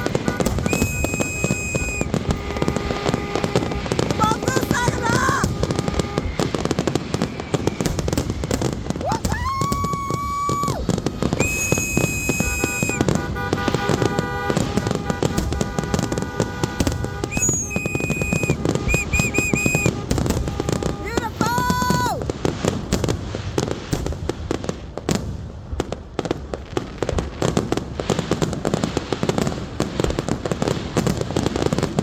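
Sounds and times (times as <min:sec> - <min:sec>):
fireworks crackling and popping: 0:00.0 - 0:32.0
whistling fireworks: 0:00.0 - 0:32.0.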